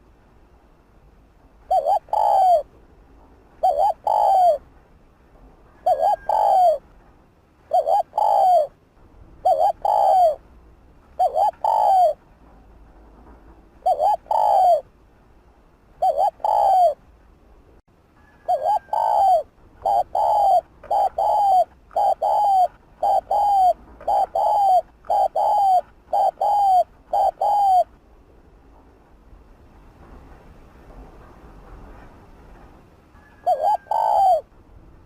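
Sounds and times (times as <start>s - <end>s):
dove cooing: 1.7s - 2.7s, 3.6s - 4.6s, 5.8s - 6.9s, 7.7s - 8.8s, 9.4s - 10.4s, 11.2s - 12.2s, 13.8s - 14.9s, 16.0s - 17.0s, 18.2s - 27.9s, 33.2s - 34.5s.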